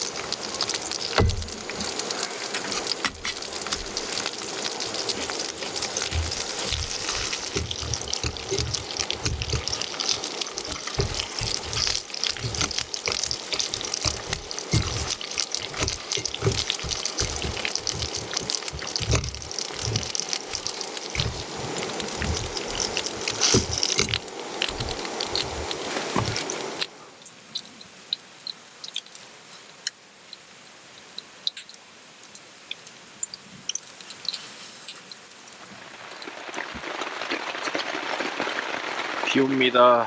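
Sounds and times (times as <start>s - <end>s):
heavy rain falling: 0.0s - 27.0s, 35.3s - 40.0s
raindrops thumping near microphone: 0.0s - 40.0s.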